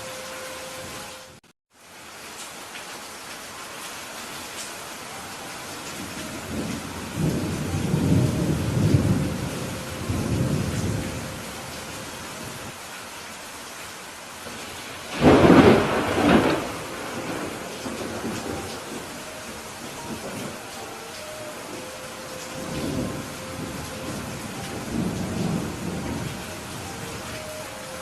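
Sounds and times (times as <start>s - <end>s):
steady rain: 0.0s - 28.0s
thunder rumbling: 6.0s - 12.7s, 14.4s - 28.0s
sharp thunderclap: 15.1s - 19.0s.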